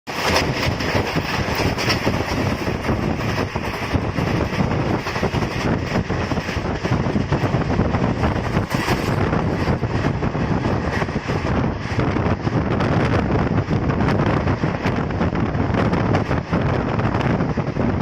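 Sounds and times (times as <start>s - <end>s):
train wheels rattling on rails: 0.1s - 18.0s.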